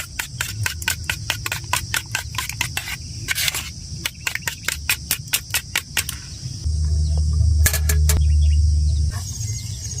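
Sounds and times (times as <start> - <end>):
loud low rumble: 6.6 - 9.1.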